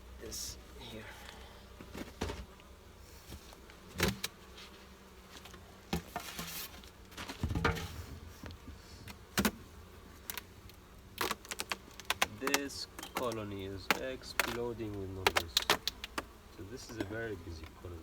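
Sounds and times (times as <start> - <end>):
honeybees buzzing: 0.0 - 18.0
knocks on wooden hive parts: 7.3 - 9.6, 11.2 - 17.8.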